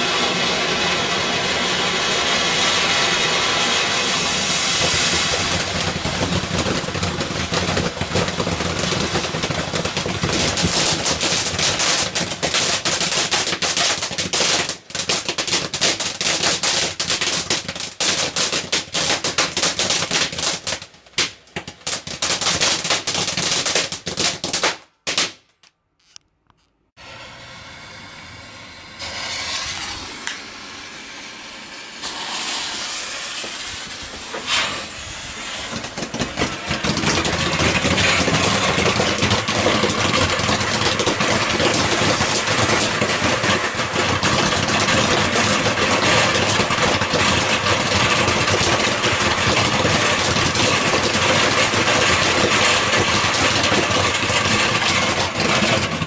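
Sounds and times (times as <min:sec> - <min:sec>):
firework hissing: 0:00.0 - 0:20.8, 0:27.0 - 0:56.0
fireworks cracking: 0:00.0 - 0:26.7, 0:28.8 - 0:56.0.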